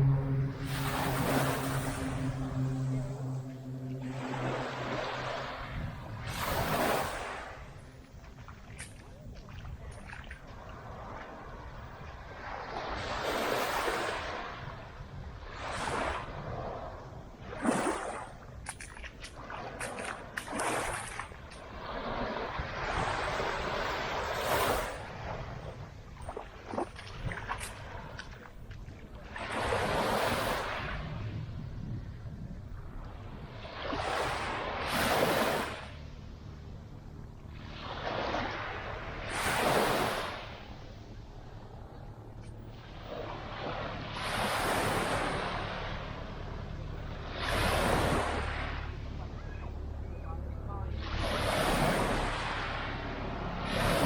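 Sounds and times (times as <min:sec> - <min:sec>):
small waves breaking on sand: 0:00.0 - 0:31.6, 0:32.8 - 0:54.0
surf washing onto beach: 0:00.0 - 0:31.6, 0:32.9 - 0:36.0, 0:37.5 - 0:41.0, 0:42.8 - 0:49.8, 0:50.6 - 0:54.0
short splashes or clicks: 0:08.3 - 0:10.6, 0:17.6 - 0:21.7.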